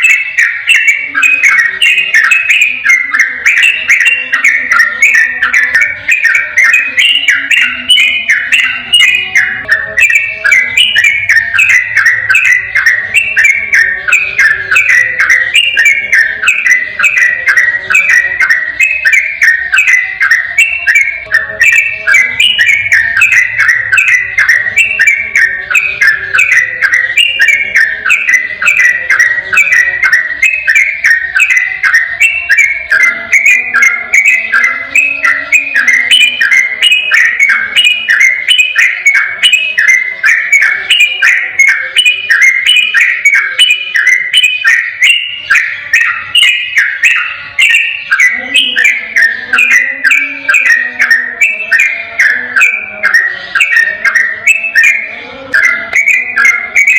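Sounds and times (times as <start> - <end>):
bulbul singing whistled notes: 0.0 - 56.9.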